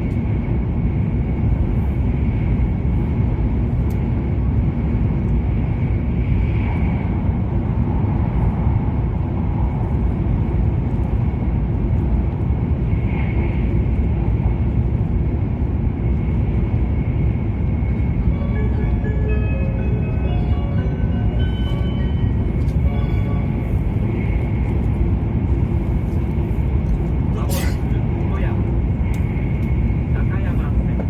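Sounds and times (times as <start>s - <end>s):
train running rumble: 0.0s - 31.0s.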